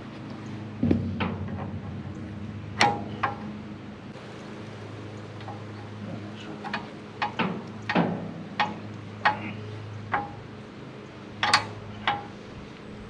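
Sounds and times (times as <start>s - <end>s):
sharp metallic clicks and clanks: 0.8s - 3.6s, 5.4s - 10.5s, 11.4s - 12.4s.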